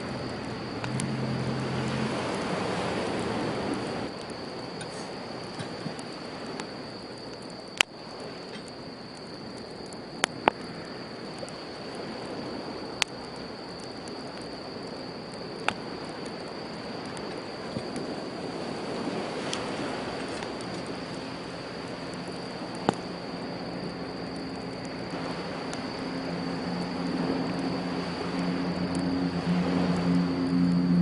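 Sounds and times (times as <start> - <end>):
campfire crackling: 0.0 - 31.0
sea waves on shore: 0.0 - 31.0
sharp fire pops: 9.6 - 27.7.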